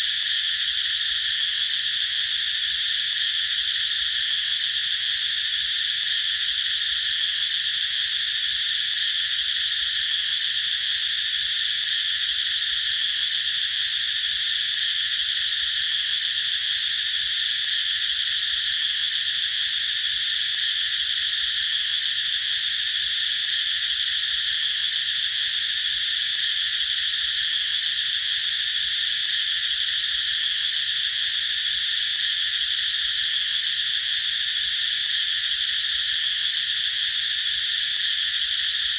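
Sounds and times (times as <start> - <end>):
cicadas buzzing: 0.0 - 38.9.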